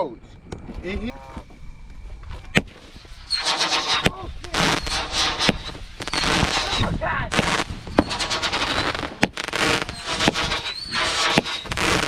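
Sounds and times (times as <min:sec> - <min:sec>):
high whistling chirps: 0:00.9 - 0:06.9, 0:07.6 - 0:09.0, 0:09.8 - 0:12.0
fireworks popping: 0:02.5 - 0:12.0
fireworks hissing spray: 0:02.8 - 0:12.0.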